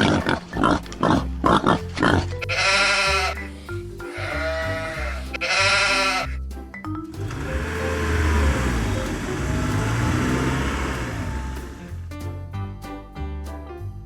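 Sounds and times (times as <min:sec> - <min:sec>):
animal bleating: 0:00.0 - 0:03.5, 0:04.1 - 0:06.4
animal grunts: 0:00.0 - 0:03.5
background music: 0:00.0 - 0:14.0.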